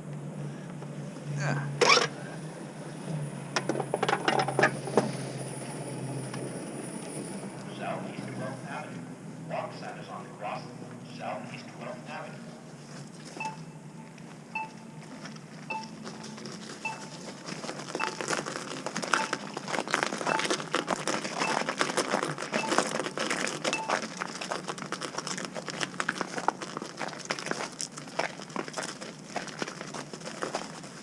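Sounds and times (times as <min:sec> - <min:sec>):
footsteps crunching in snow: 0:12.4 - 0:31.0
pedestrian signal beeping: 0:13.4 - 0:17.3, 0:18.0 - 0:18.4, 0:19.1 - 0:19.6, 0:20.2 - 0:21.8, 0:22.6 - 0:23.1, 0:23.7 - 0:24.0.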